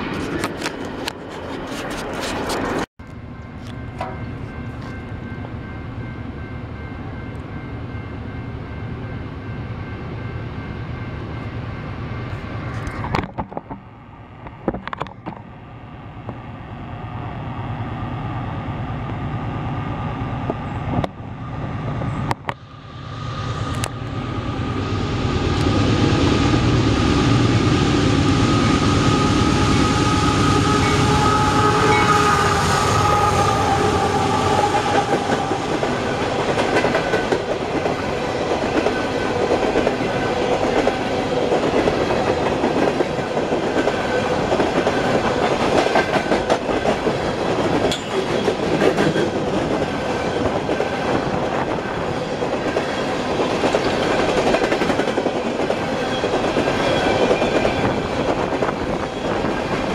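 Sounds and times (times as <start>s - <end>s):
train rumbling: 0.0s - 59.9s
steady high tones: 22.7s - 37.6s.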